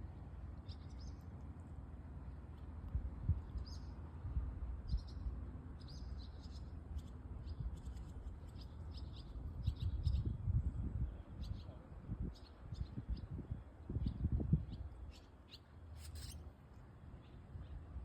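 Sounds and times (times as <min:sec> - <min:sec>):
small birds chirping: 0:00.6 - 0:01.4, 0:03.3 - 0:04.0, 0:04.8 - 0:10.4, 0:11.0 - 0:16.5.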